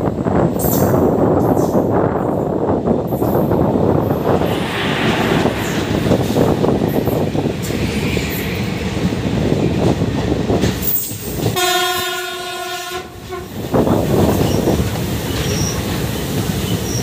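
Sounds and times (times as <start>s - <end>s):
train wheels rumbling on rails: 0.0s - 17.0s
train horn blast: 11.5s - 13.6s.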